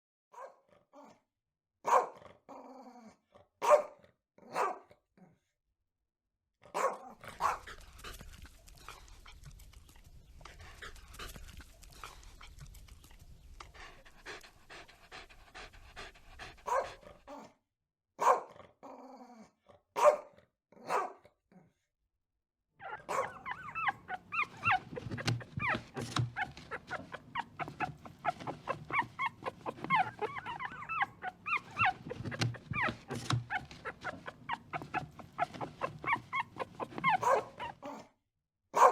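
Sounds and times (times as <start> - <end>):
dogs barking: 1.9 - 2.2, 3.6 - 4.8, 6.8 - 7.8, 14.2 - 17.1, 18.2 - 18.5, 20.0 - 21.2, 22.8 - 38.0
rapid short pitched dog calls: 22.8 - 37.9.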